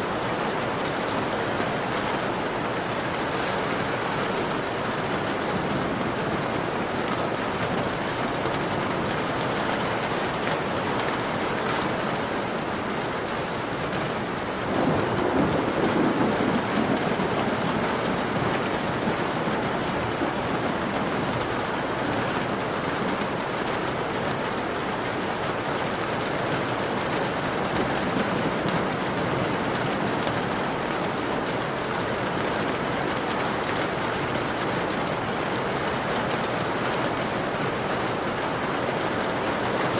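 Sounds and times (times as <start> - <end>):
rain pattering on a window: 0.0 - 39.9
thunder rumbling: 14.6 - 21.5.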